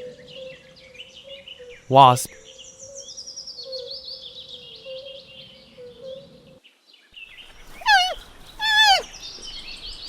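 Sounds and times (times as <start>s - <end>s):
birds chirping: 7.3s - 10.0s
animal calls sliding down in pitch: 7.7s - 9.0s.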